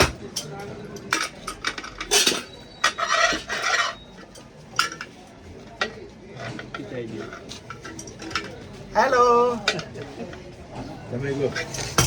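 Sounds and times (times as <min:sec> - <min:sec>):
metal pots clinking and knocking: 0:00.0 - 0:05.1, 0:05.8 - 0:08.6.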